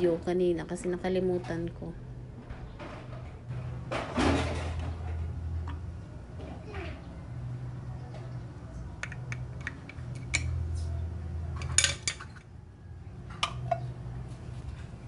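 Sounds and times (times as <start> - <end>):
clicks and clinks of hard parts: 11.6 - 12.5.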